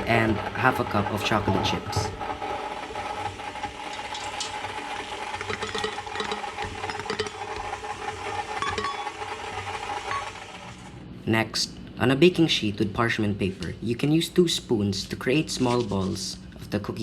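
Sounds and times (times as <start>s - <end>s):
stand mixer running: 0.0s - 11.0s
bowl clicking and rattling: 3.9s - 4.6s, 5.3s - 7.9s, 8.5s - 9.3s.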